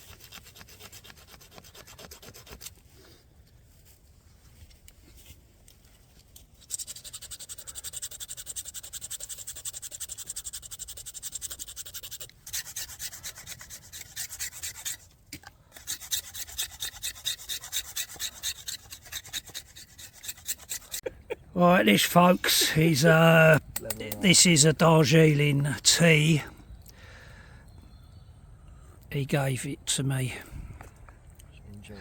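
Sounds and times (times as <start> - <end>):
rapid scraping on wood: 0.0 - 2.8, 6.7 - 15.1, 15.7 - 21.1.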